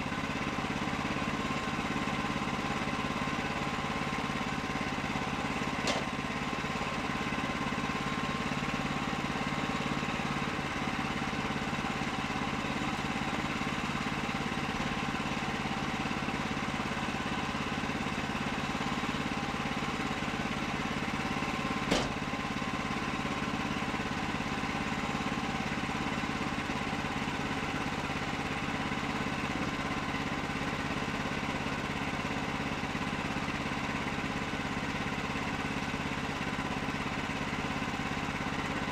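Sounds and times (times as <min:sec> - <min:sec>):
engine running steadily: 0:00.0 - 0:38.9
sharp knock: 0:21.9 - 0:22.2.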